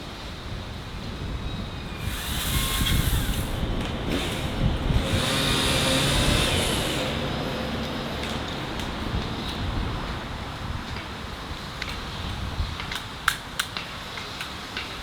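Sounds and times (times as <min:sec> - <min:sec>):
tractor engine running: 0:02.0 - 0:09.5.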